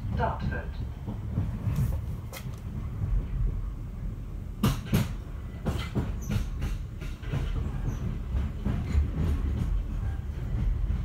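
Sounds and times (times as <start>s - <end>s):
train rumble from inside carriage: 0.0s - 11.0s
wheels clacking over rail joints: 4.6s - 11.0s.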